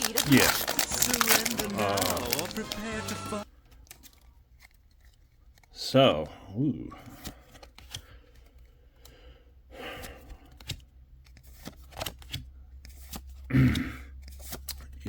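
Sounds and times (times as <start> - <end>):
packaging rustling: 0.0 - 5.7
cards and packaging clicking: 0.0 - 5.8, 7.2 - 9.2, 10.1 - 15.0.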